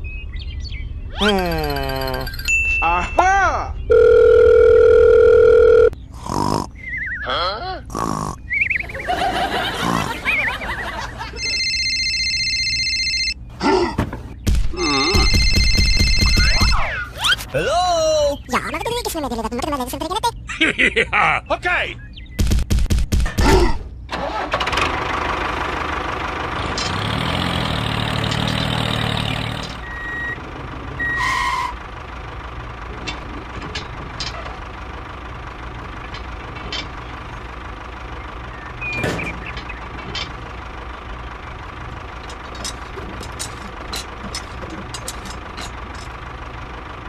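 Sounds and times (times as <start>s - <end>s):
engine cranking and running: 24.0s - 47.0s.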